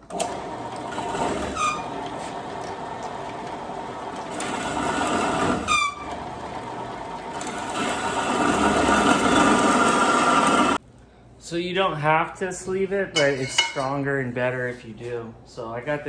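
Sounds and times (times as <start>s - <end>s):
band saw cutting metal tubing: 0.0s - 2.9s, 3.8s - 10.8s
short falling squeak: 1.4s - 2.0s.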